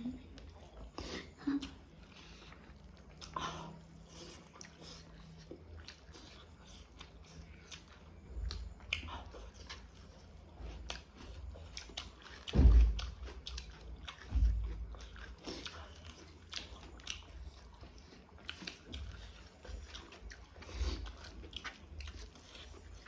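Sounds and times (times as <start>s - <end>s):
person chewing food: 0.0s - 23.0s
loud low thump: 12.5s - 13.1s, 14.3s - 14.9s.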